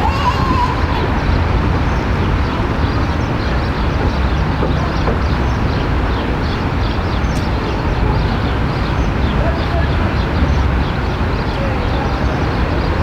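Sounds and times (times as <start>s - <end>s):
tram rumbling: 0.0s - 13.0s.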